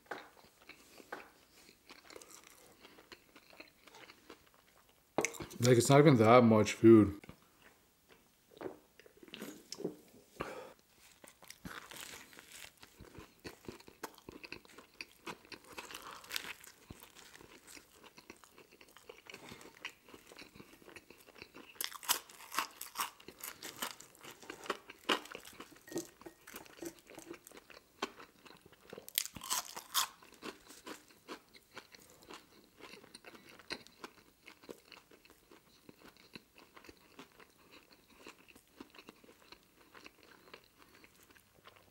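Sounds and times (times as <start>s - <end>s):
chewing a toasted sandwich: 0.1s - 5.6s, 10.8s - 41.9s
crunchy bites: 11.2s - 28.3s, 29.0s - 33.8s.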